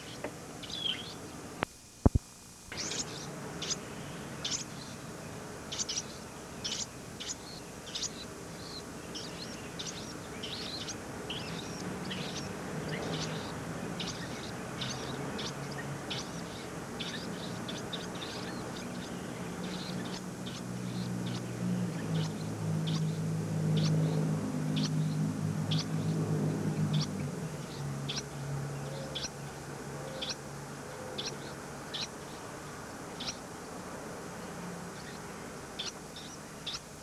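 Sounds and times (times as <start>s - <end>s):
low steady hum: 0.0s - 37.0s
small birds chirping: 0.0s - 37.0s.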